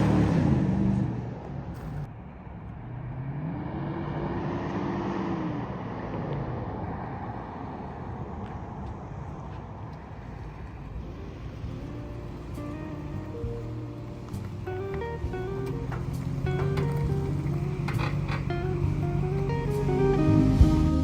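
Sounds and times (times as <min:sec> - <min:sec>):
car engine running: 0:00.0 - 0:03.2, 0:08.8 - 0:21.0.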